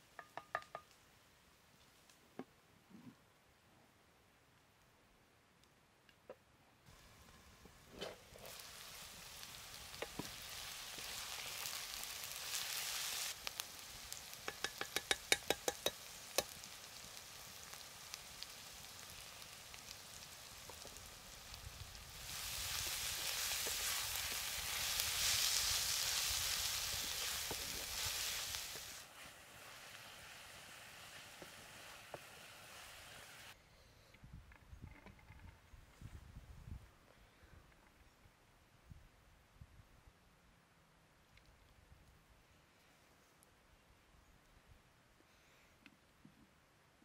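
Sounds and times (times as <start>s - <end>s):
vegetables sizzling in oil: 6.9s - 33.6s.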